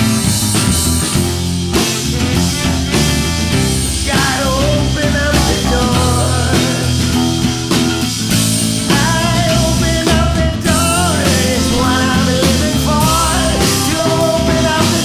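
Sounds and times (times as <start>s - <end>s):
rock band playing: 0.0s - 15.0s
wavering lead melody: 3.5s - 9.9s.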